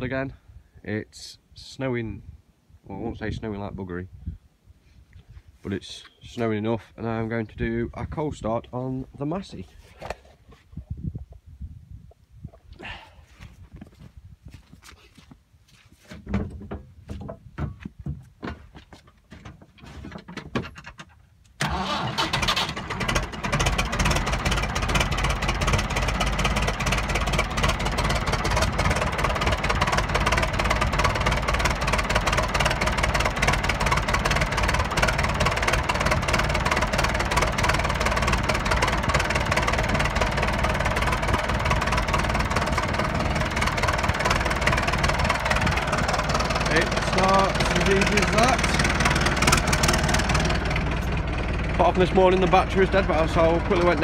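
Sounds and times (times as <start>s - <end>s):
tractor engine starting and idling: 19.4s - 54.0s.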